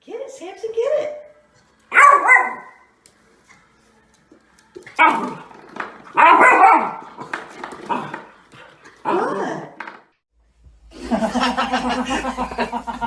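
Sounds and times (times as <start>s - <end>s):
dog barking: 1.9s - 2.9s, 6.2s - 7.0s.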